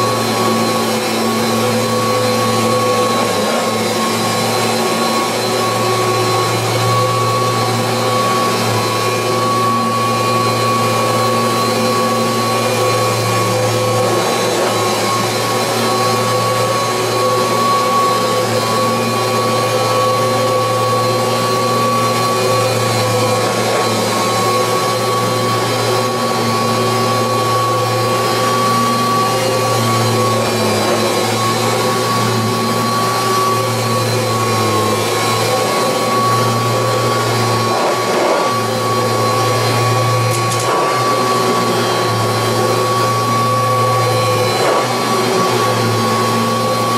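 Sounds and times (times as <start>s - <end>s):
vacuum cleaner running: 0.0s - 46.9s.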